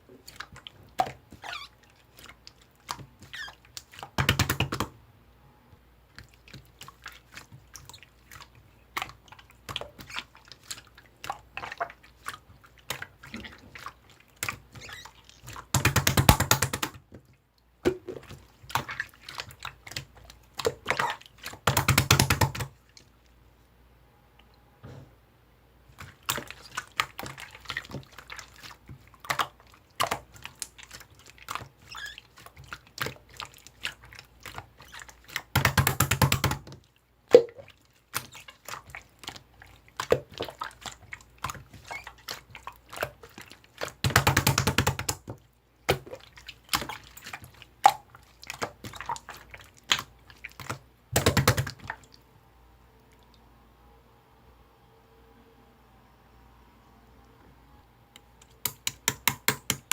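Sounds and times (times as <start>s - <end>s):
slime rapid crackling: 11.4s - 17.0s, 45.9s - 52.0s.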